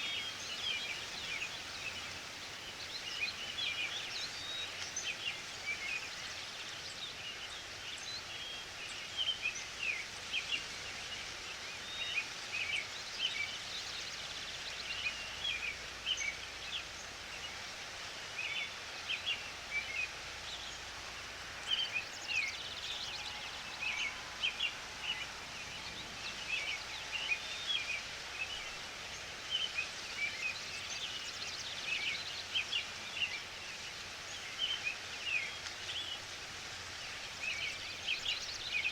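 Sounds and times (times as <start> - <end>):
small birds chirping: 0.0 - 6.6
forest ambience hiss: 0.0 - 38.9.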